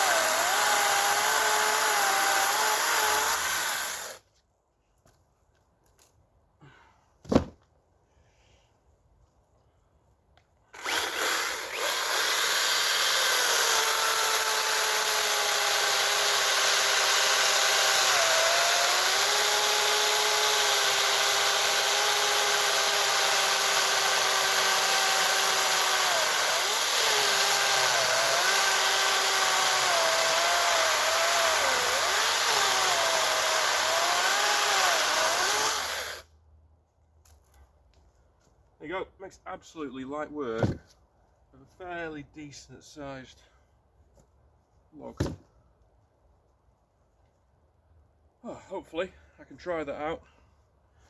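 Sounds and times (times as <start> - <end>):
chainsaw cutting through log: 0.0 - 4.2, 10.7 - 36.3.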